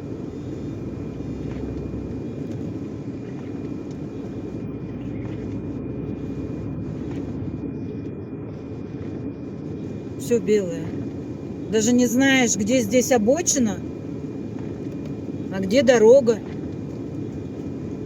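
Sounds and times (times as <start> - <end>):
road noise: 0.0 - 18.0
truck engine low rumble: 0.0 - 18.0.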